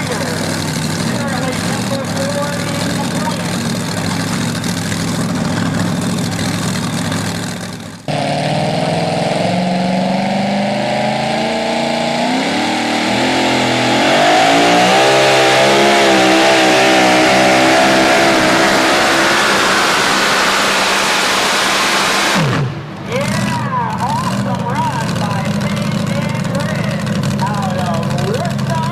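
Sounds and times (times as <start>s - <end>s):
truck engine revving: 0.0s - 28.9s.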